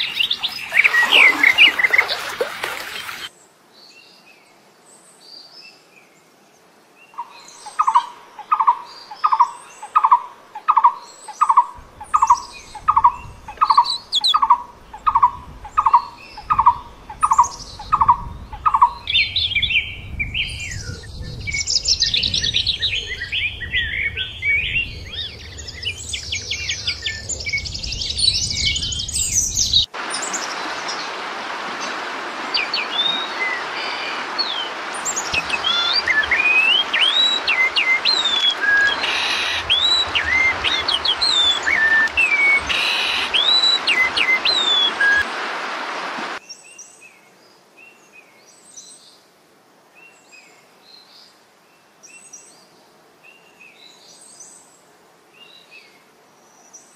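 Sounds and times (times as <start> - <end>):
birds chirping and trilling: 0.0 - 4.0, 7.1 - 31.2, 31.8 - 45.7
steady hiss: 24.0 - 46.6.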